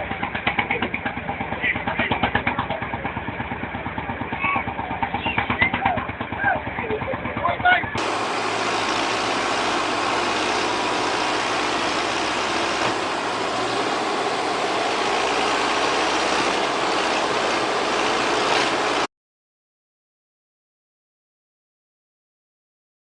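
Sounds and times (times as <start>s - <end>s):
heavy vehicle engine running: 0.0s - 19.1s
dense wash of noise: 8.0s - 19.1s.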